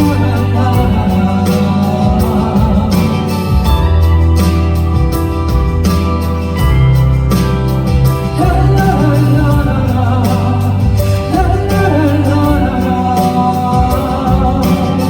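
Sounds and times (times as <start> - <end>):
person singing wordless melody: 0.0 - 4.6, 7.9 - 15.0
live band music: 0.0 - 15.0.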